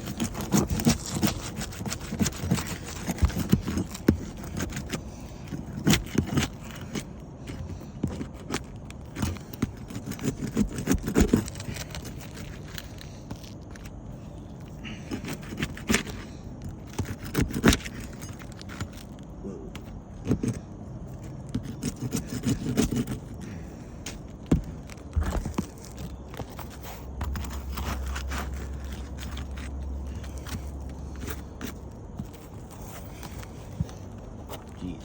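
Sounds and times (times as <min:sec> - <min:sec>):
metal tools scraping shingles: 0:00.0 - 0:19.2.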